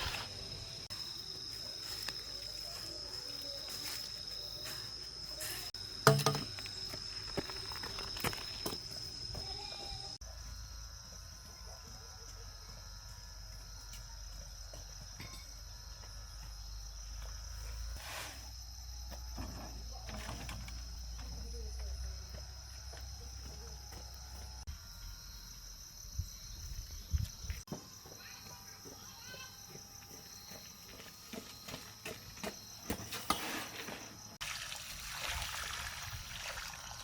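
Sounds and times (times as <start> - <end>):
high-pitched insect chorus: 0.0 - 37.0.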